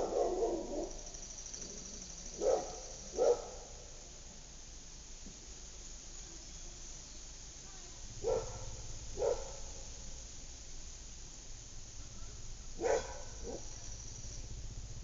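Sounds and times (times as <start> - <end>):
dog barking: 0.0 - 1.0, 2.4 - 3.8, 8.2 - 9.9, 12.8 - 13.7
low background rumble: 0.0 - 15.0.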